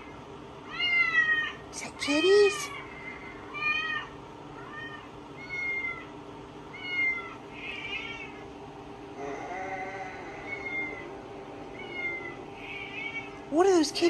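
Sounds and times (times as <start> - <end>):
cats meowing through tv speaker: 0.7 - 6.1, 6.7 - 8.4, 9.3 - 11.1, 11.7 - 13.4.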